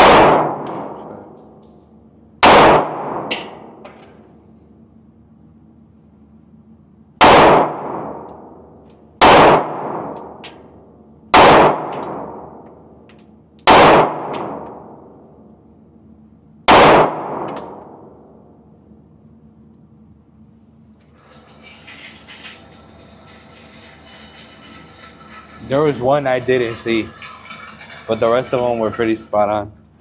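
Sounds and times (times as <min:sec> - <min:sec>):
handgun shots echoing: 0:00.0 - 0:01.0, 0:02.4 - 0:03.9, 0:09.2 - 0:10.6, 0:11.3 - 0:12.7, 0:13.6 - 0:15.0, 0:16.7 - 0:18.2.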